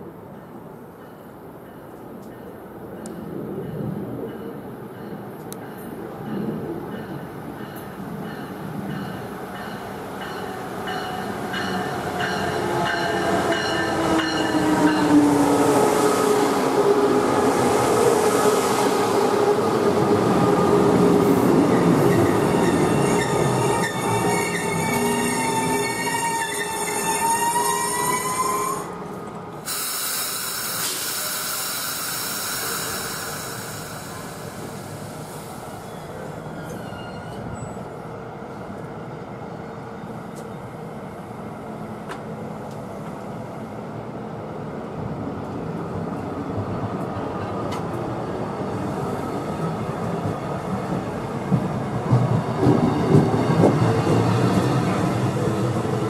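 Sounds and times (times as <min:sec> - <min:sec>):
train wheels rolling on rail: 0:00.3 - 0:56.0
high wheel squeal: 0:35.8 - 0:37.8.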